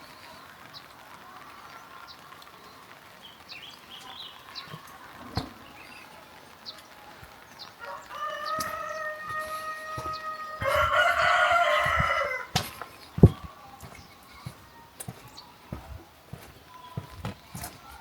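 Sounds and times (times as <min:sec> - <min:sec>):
small birds chirping: 0:00.0 - 0:18.0
rooster crowing: 0:07.8 - 0:12.6.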